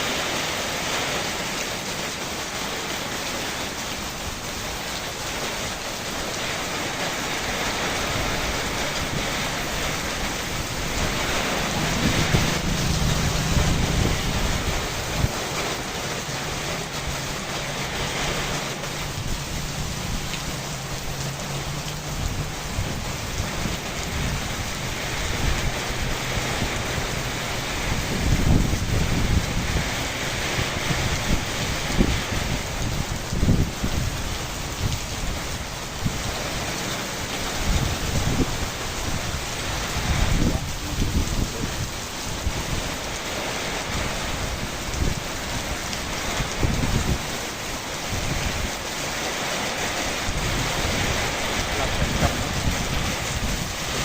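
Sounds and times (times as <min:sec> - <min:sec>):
rain falling: 0:00.0 - 0:54.0
thunder rumbling: 0:06.8 - 0:34.2, 0:49.7 - 0:54.0.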